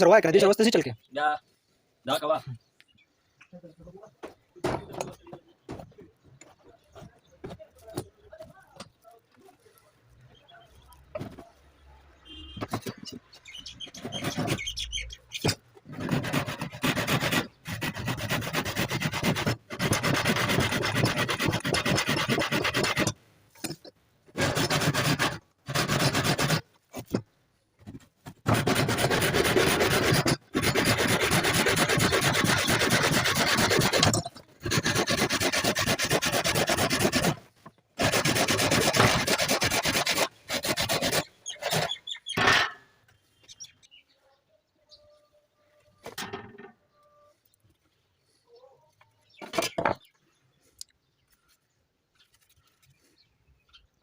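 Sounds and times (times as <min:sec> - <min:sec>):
file rasping on saw teeth: 0:15.4 - 0:23.2, 0:24.4 - 0:26.6, 0:28.5 - 0:37.4, 0:38.0 - 0:42.0.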